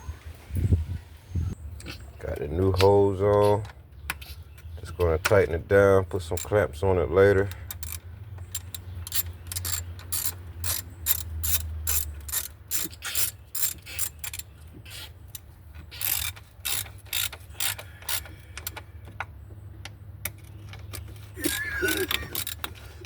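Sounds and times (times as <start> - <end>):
ratchet wrench clicking: 7.5 - 14.5, 15.3 - 18.8, 21.5 - 22.8.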